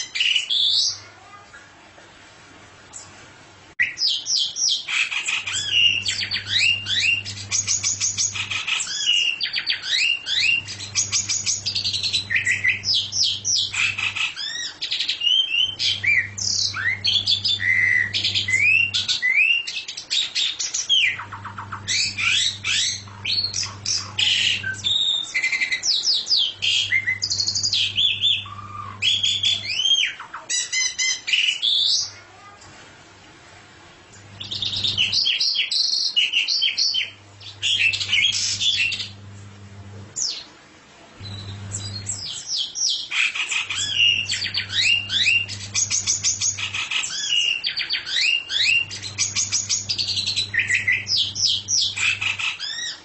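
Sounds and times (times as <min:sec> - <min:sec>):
songbird singing: 0:03.8 - 0:32.2, 0:34.1 - 0:39.4, 0:41.2 - 0:53.0
low hum: 0:10.4 - 0:14.0, 0:15.7 - 0:19.1, 0:21.2 - 0:25.0, 0:26.5 - 0:29.7, 0:37.2 - 0:40.2, 0:41.2 - 0:42.2, 0:44.1 - 0:46.8, 0:48.7 - 0:52.1.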